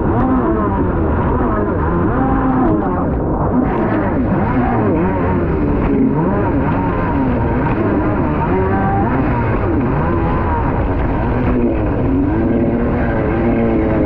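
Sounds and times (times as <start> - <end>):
jet ski engine running hard: 0.0 - 14.0
water and wind rushing: 0.0 - 14.0.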